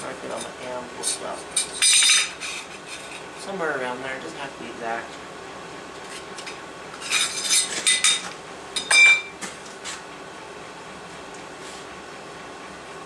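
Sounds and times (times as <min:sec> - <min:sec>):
steel tools clinking on anvil: 0:01.1 - 0:02.6, 0:07.0 - 0:09.3.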